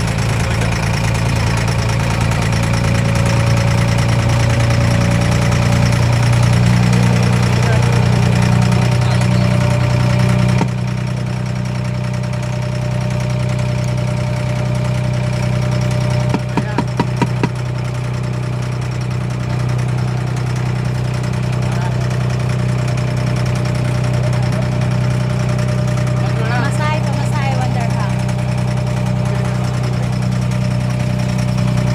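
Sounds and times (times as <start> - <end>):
boat diesel engine drone: 0.0 - 31.9
sharp knocks: 10.4 - 10.9, 16.2 - 17.9.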